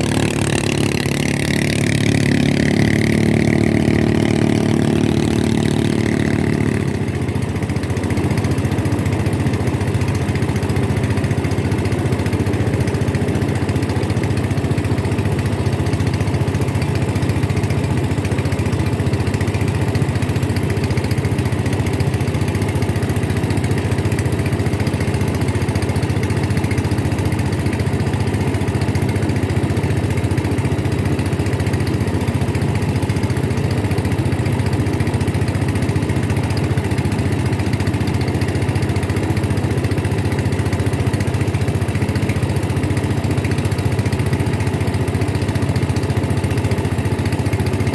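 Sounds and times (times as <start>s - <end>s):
higher engine tone: 0.0s - 15.2s
motorboat engine running: 0.0s - 47.9s.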